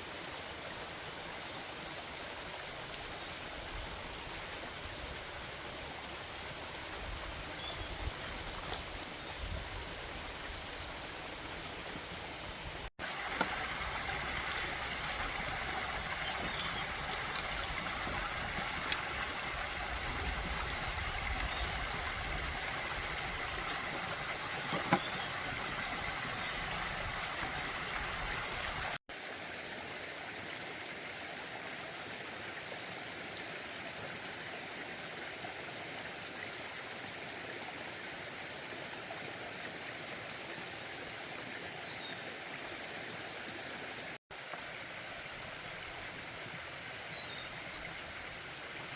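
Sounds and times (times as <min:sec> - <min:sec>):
thin high steady tone: 0:00.0 - 0:29.0.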